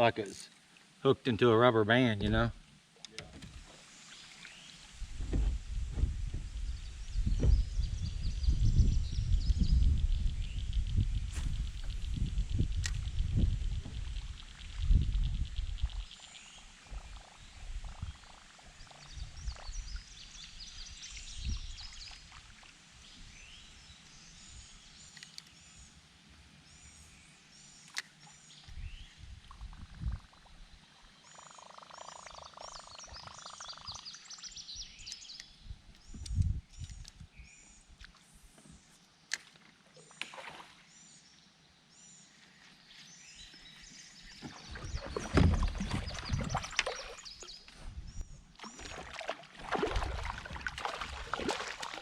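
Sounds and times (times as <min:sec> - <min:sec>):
low knocks: 0:05.2 - 0:06.6
birds chirping: 0:26.8 - 0:38.0, 0:41.0 - 0:49.0.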